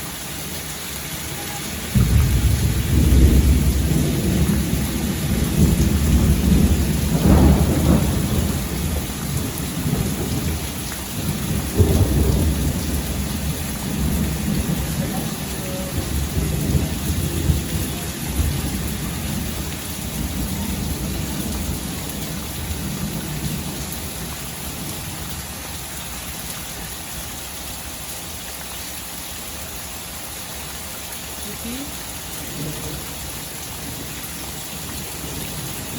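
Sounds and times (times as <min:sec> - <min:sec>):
steady rain falling: 0:00.0 - 0:35.9
thunder rumbling: 0:01.3 - 0:25.9, 0:32.4 - 0:35.9.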